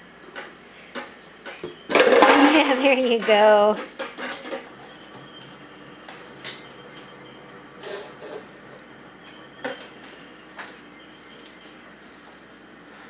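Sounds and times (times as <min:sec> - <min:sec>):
paper cups and ball clattering: 0:00.3 - 0:08.8.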